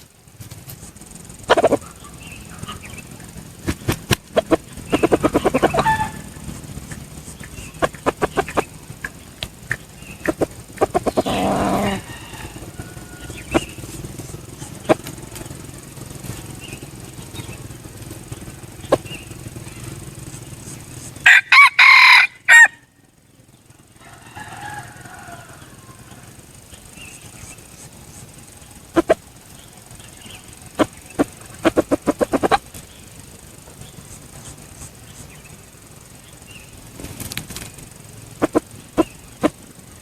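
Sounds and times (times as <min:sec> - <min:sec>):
wings flapping: 0:00.0 - 0:22.9, 0:24.0 - 0:40.0
rooster crowing: 0:04.4 - 0:09.1, 0:10.0 - 0:16.0, 0:21.2 - 0:23.0, 0:24.0 - 0:26.7
sharp clicks and knocks: 0:06.4 - 0:11.3.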